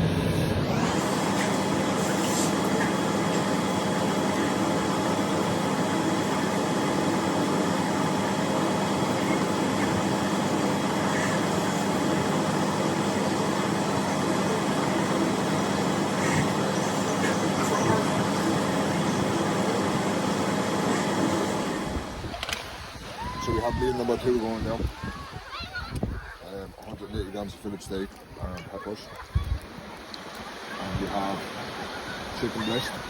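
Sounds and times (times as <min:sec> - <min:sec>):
machine rushing hum: 0:00.0 - 0:23.3.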